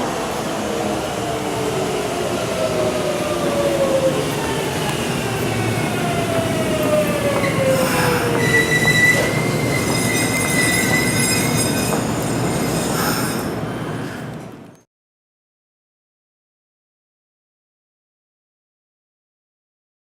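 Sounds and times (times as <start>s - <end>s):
high brake squeal: 7.3s - 14.2s.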